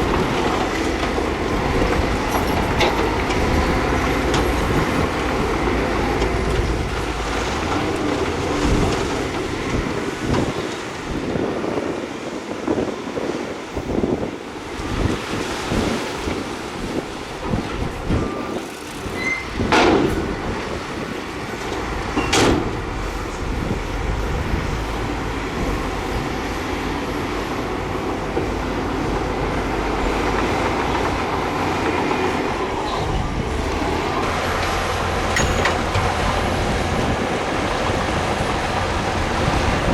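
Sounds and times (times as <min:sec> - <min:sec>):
diesel engine rumble: 0:00.0 - 0:39.9
metallic clanking: 0:32.5 - 0:37.2.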